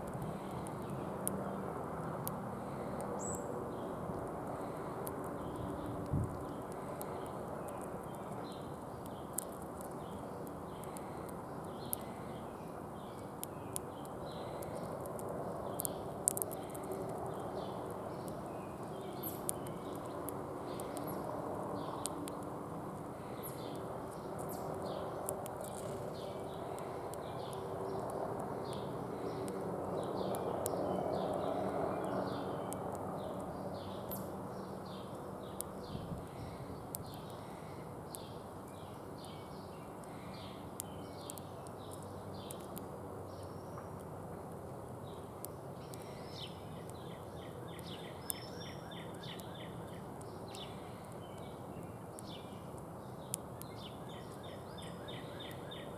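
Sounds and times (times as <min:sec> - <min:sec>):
outdoor background hum: 0:00.0 - 0:55.9
small birds chirping: 0:00.0 - 0:55.9
sharp clicks and taps: 0:05.0 - 0:12.1, 0:13.4 - 0:18.4, 0:19.3 - 0:23.1.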